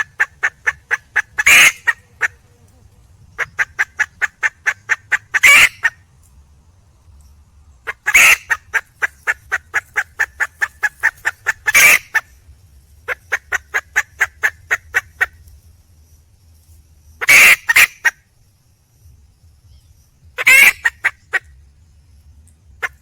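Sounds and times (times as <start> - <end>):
hen squawking: 0.0 - 2.4, 3.4 - 6.0, 7.9 - 9.4, 10.0 - 12.2, 17.2 - 18.1, 20.4 - 21.2
hen clucking: 0.0 - 6.0, 7.8 - 12.3, 13.1 - 15.4, 17.2 - 18.2, 20.4 - 21.5, 22.8 - 23.0.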